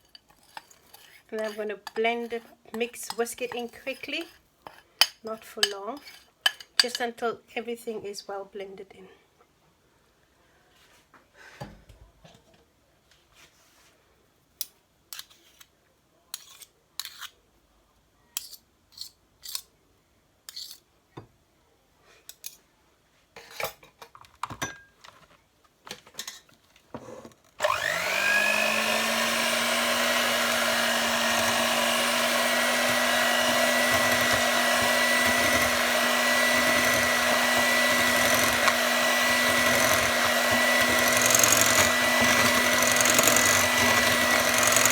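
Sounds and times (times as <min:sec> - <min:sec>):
electric mixer whine: 0:27.6 - 0:44.9.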